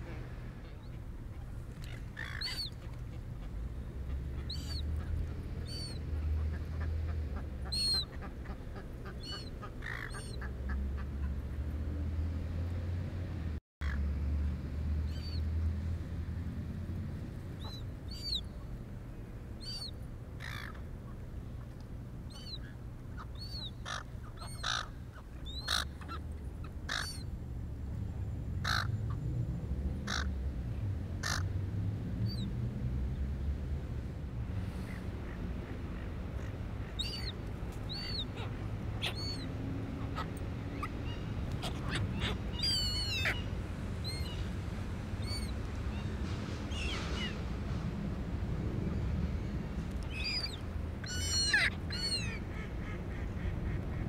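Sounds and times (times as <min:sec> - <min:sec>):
loud rough bird calls: 0:01.8 - 0:02.7.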